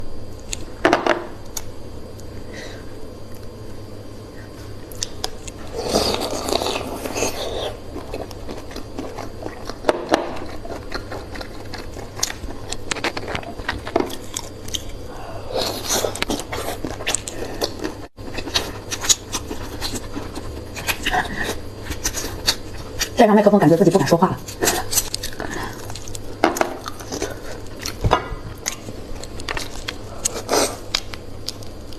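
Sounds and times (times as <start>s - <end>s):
eating clicks and scrapes: 5.0s - 15.0s, 15.6s - 23.2s, 24.5s - 28.0s.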